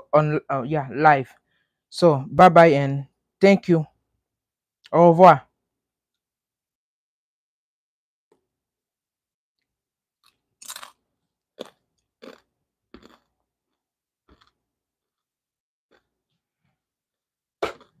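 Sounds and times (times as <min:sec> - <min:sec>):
person chewing crunchy food: 0:10.2 - 0:15.3, 0:15.9 - 0:16.9, 0:17.6 - 0:18.0.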